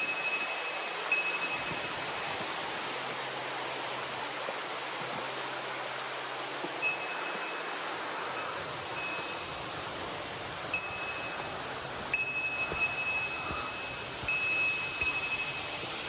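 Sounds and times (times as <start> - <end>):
small metal bell ringing: 0.0 - 2.0, 6.8 - 7.7, 8.3 - 9.7, 10.7 - 11.5, 12.1 - 16.0
flowing water hiss: 0.0 - 16.0.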